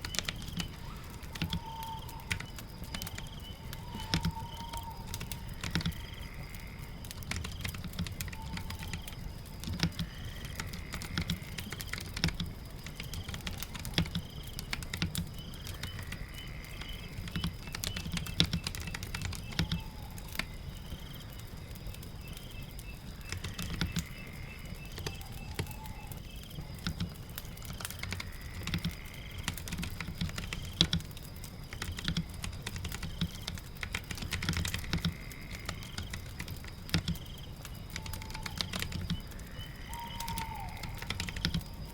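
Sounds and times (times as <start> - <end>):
rain patter: 0.0 - 41.9
typing on computer keyboard: 1.3 - 6.1, 7.1 - 16.1, 16.8 - 20.5, 23.3 - 24.1, 26.8 - 31.1, 31.7 - 39.2, 40.1 - 41.8.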